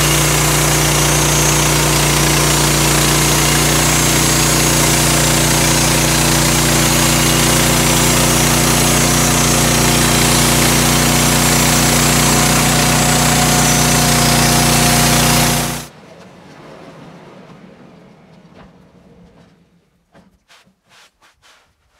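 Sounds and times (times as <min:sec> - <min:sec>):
bandsaw mill sawing log: 0:00.0 - 0:15.9.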